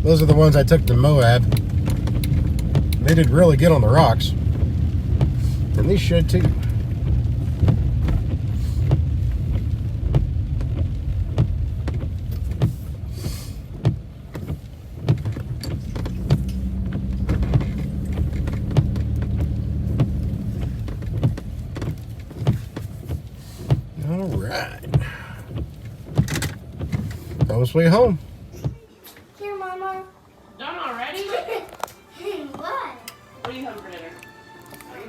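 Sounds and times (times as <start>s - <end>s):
car rumble from inside cabin: 0.0s - 28.8s
knocks and clicks: 0.2s - 3.8s, 13.7s - 27.6s.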